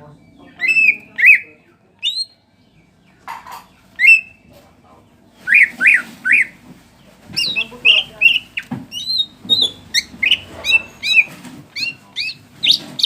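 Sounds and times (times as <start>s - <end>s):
bird whistled calls: 0.6s - 2.4s, 4.0s - 4.4s, 5.4s - 6.6s, 7.4s - 13.0s
bird rasp: 5.4s - 6.6s, 7.2s - 13.0s.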